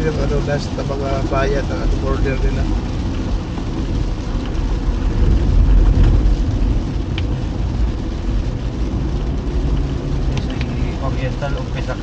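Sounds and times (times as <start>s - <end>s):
car road and engine rumble: 0.0s - 12.0s
rain hiss: 0.0s - 12.0s
sharp tick: 7.1s - 7.3s.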